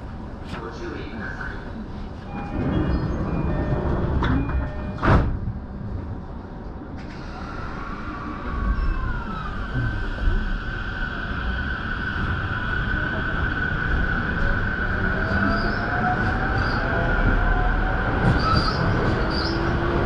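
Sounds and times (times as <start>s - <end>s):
train doors shutting: 2.2s - 6.2s, 6.9s - 10.8s, 14.4s - 20.0s.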